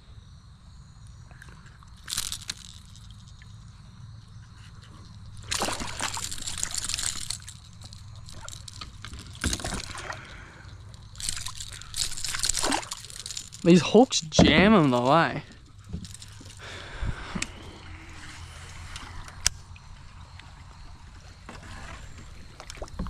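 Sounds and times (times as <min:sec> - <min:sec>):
fish splashing in water: 0:05.4 - 0:13.9.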